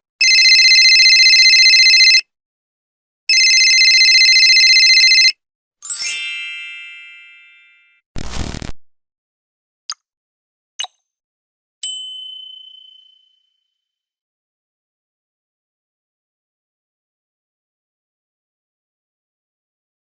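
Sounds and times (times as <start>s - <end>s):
telephone ring: 0.2s - 2.2s, 3.3s - 5.4s.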